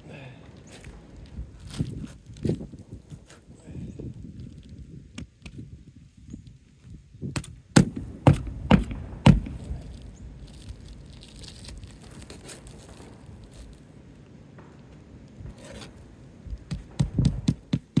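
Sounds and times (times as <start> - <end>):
shingles rustling: 0.0 - 18.0
sharp knocks on roof: 7.4 - 9.8, 16.4 - 18.0.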